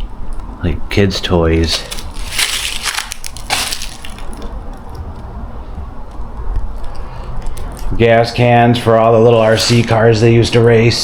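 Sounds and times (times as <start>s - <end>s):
debris crunching underfoot: 1.6s - 5.3s, 9.3s - 10.1s.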